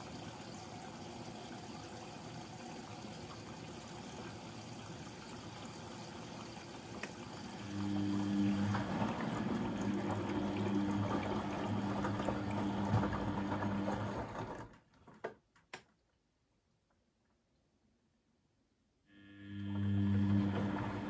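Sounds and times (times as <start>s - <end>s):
washing machine hum: 0.0s - 15.6s, 19.1s - 21.0s.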